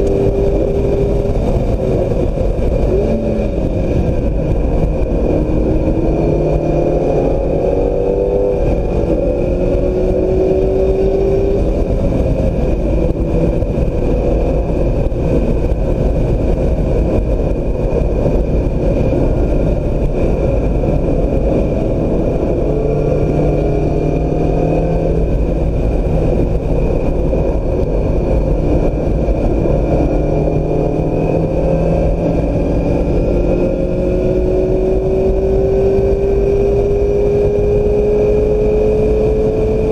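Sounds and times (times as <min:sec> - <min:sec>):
car engine accelerating: 0:00.0 - 0:39.9
road and wind noise: 0:00.0 - 0:39.9.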